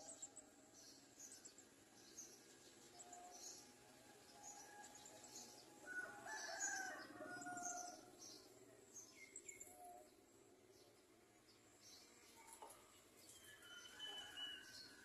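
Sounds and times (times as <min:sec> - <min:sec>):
long drawn-out bird call: 0:13.4 - 0:15.0.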